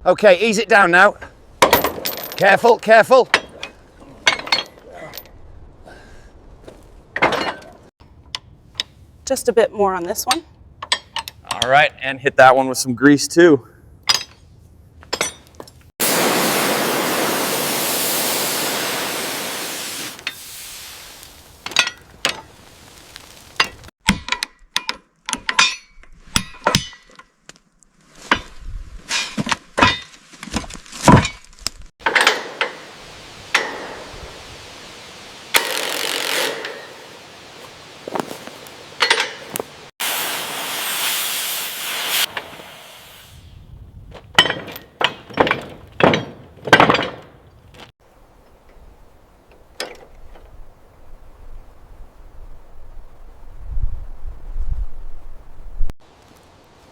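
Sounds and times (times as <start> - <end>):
hissing spray: 16.0 - 21.7, 40.0 - 43.6
hand tools tapping metal: 33.5 - 34.0, 39.0 - 39.6.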